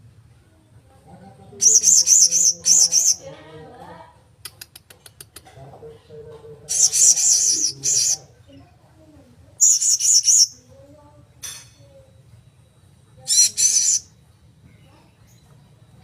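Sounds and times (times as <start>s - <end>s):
parrot shrill warbling calls: 6.7s - 8.2s, 9.6s - 10.6s, 13.3s - 14.1s.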